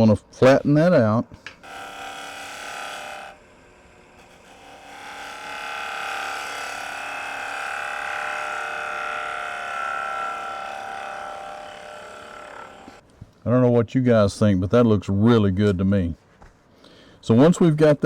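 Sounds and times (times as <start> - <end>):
wood lathe humming: 1.5 - 13.0.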